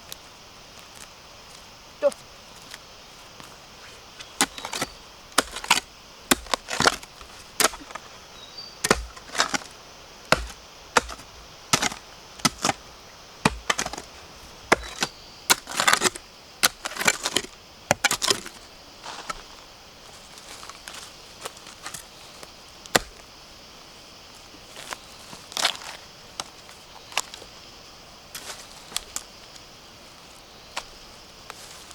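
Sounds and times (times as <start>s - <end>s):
blade chopping bamboo: 4.4s - 8.1s, 8.8s - 9.7s, 10.3s - 12.8s, 13.4s - 18.5s.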